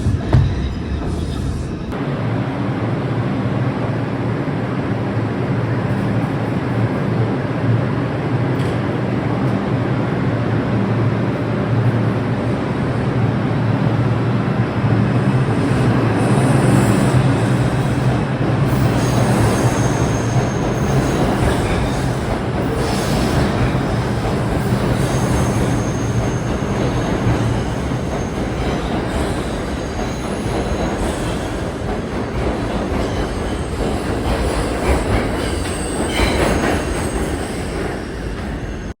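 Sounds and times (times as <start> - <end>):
subway train rumbling: 0.0 - 39.0
high wheel squeals: 18.7 - 31.6.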